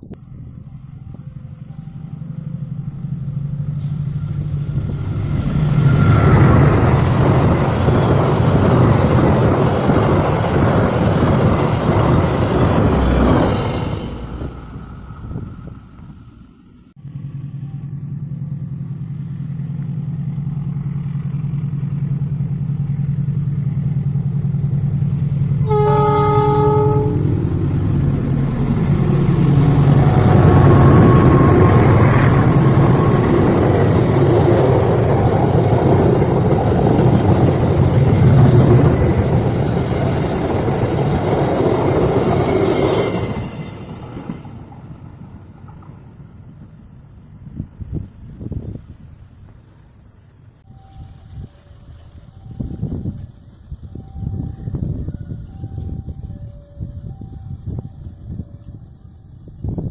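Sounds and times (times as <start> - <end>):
diesel locomotive engine drone: 0.0 - 59.9
wheel and rail clatter: 0.6 - 16.9, 19.6 - 59.9
train horn blast: 25.5 - 35.1.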